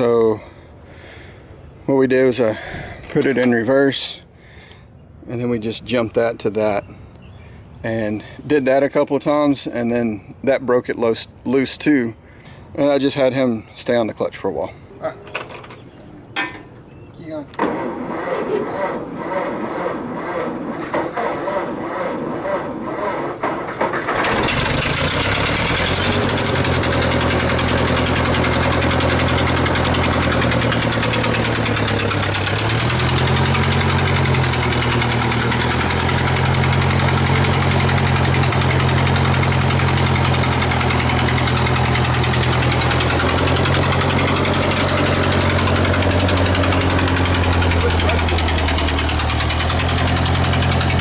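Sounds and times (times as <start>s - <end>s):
tractor engine cranking: 2.1s - 4.3s, 17.5s - 51.0s
tractor engine idling: 17.7s - 51.0s.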